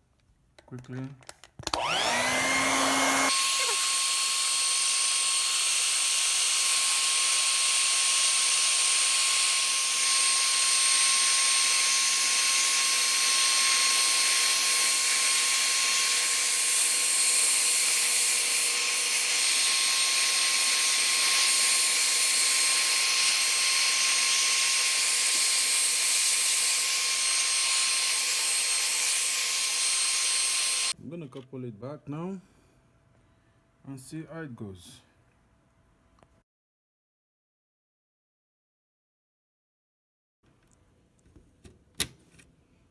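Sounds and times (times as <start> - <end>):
hair dryer blowing: 1.6 - 31.0.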